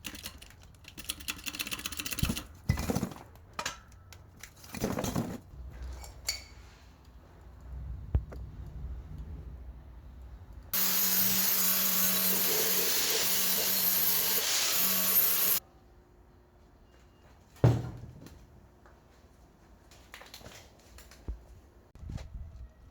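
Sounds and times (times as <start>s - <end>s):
power tool hissing with low hum: 10.8s - 15.6s.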